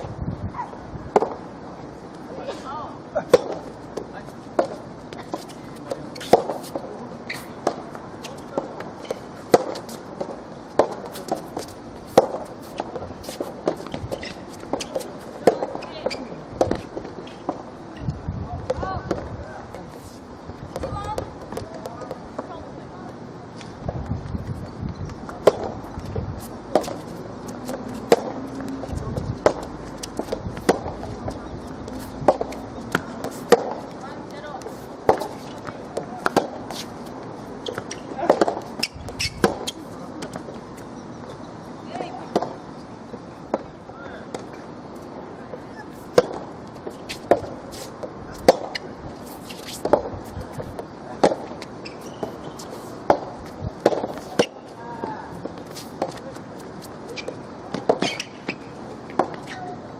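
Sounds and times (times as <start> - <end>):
background noise: 0.0 - 59.9
rackets hitting soft ball: 3.3 - 16.8, 25.3 - 25.8, 26.7 - 28.4, 29.4 - 31.2, 31.8 - 37.0, 37.7 - 40.5, 49.5 - 50.2.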